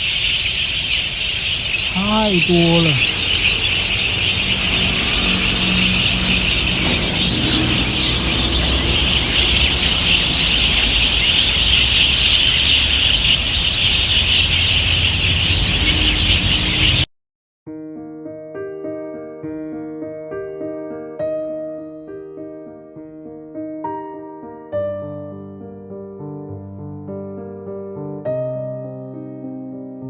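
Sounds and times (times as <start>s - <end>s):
flock of birds chirping: 0.0s - 17.1s.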